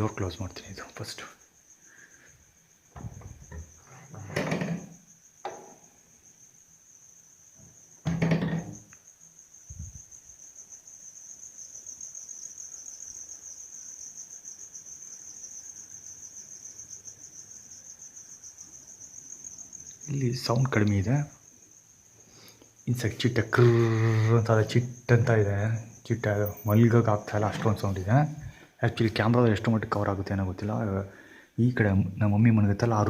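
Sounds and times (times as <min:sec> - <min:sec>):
insects trilling: 0:00.0 - 0:33.0
loud knocks: 0:08.0 - 0:08.8.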